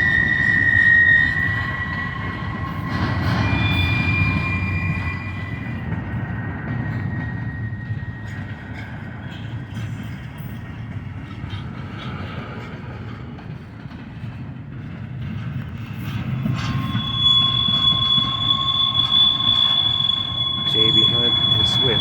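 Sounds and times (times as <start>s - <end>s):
high-pitched wheel squeal: 0.0s - 5.9s, 16.0s - 22.0s
train wheels rumbling on rail: 0.0s - 22.0s.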